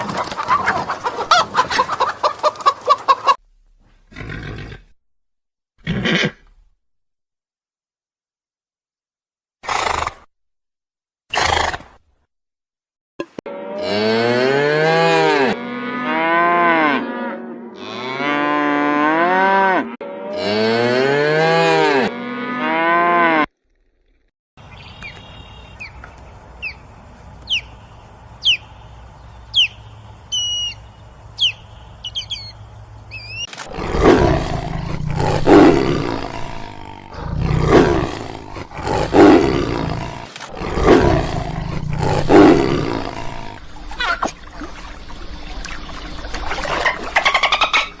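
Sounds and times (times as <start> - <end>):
loud rough animal calls: 33.2 - 44.4.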